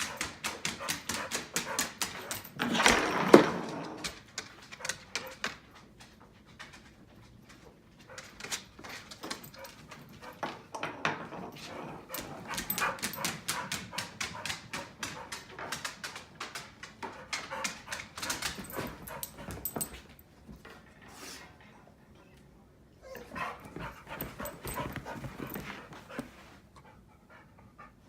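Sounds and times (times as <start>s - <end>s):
dog whining and yipping: 23.0s - 23.5s.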